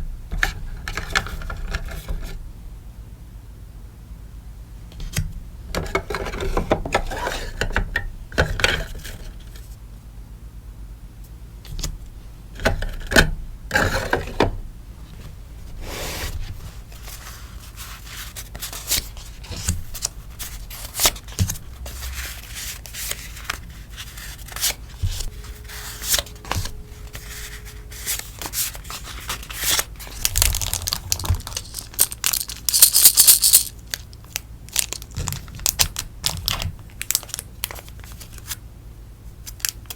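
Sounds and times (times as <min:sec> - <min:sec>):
plastic wrap crinkling: 0:27.0 - 0:38.6.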